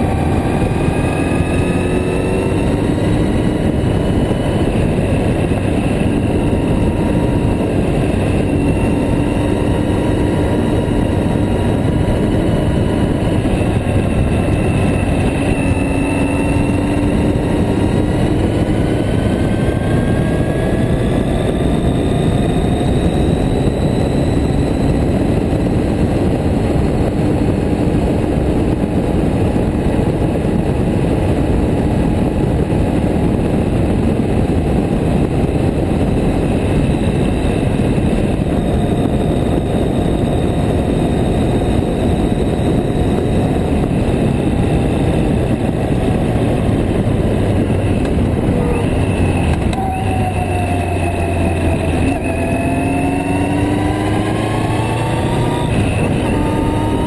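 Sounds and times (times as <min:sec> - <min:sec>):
motorcycle engine running: 0:00.0 - 0:57.0
wind rush: 0:00.0 - 0:57.0.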